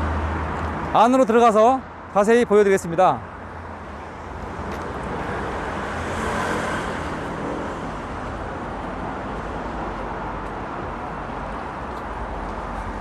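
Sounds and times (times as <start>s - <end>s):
road traffic hum: 0.0s - 13.0s
vehicle passing: 3.4s - 13.0s.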